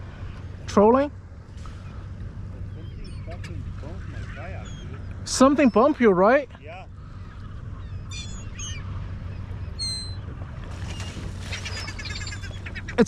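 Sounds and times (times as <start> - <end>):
low background rumble: 0.0 - 13.0
seagulls calling: 1.6 - 13.0.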